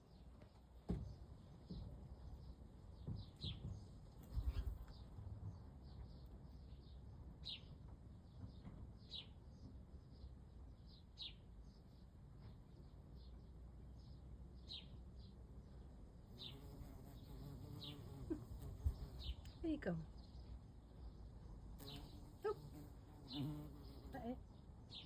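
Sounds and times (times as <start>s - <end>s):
birds chirping: 16.4s - 20.5s, 21.8s - 25.0s.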